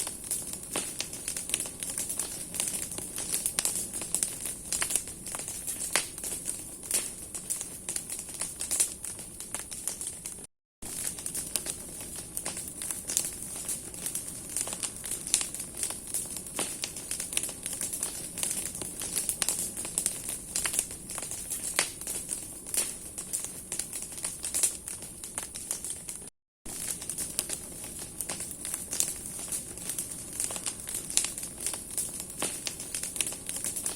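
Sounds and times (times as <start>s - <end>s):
bonfire crackling and popping: 0.0s - 33.9s.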